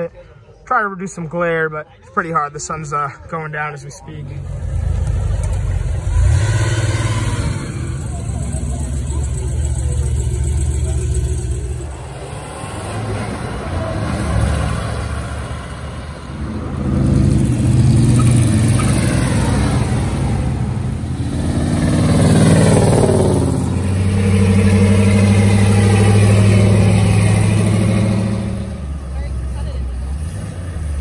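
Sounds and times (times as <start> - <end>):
car engine revving: 4.3 - 31.0.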